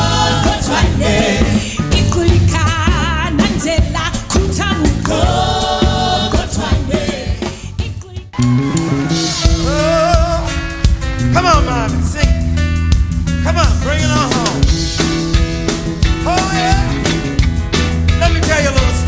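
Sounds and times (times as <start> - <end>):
band with drum kit: 0.0 - 19.0
singer holding long notes: 8.4 - 10.8.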